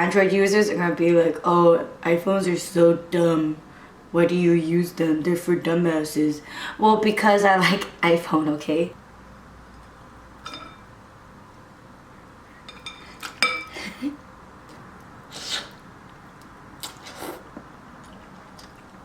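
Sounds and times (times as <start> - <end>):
spoon clinking against ceramic bowl: 12.7 - 13.7.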